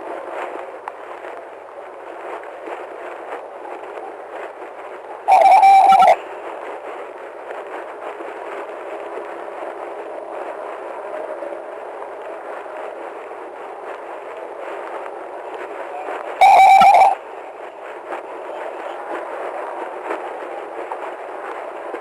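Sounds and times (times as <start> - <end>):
police radio static hiss: 15.6 - 17.2.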